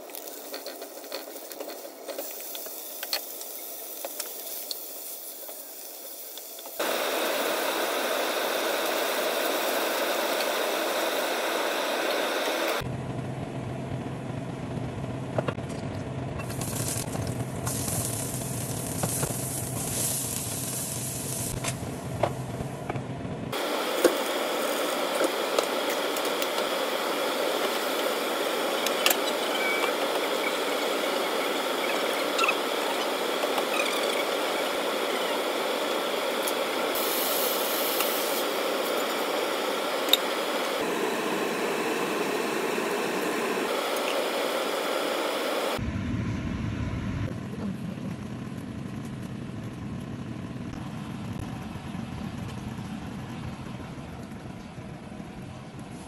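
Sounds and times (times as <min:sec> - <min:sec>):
food sizzling in hot oil: 0:16.5 - 0:21.6, 0:23.6 - 0:45.8.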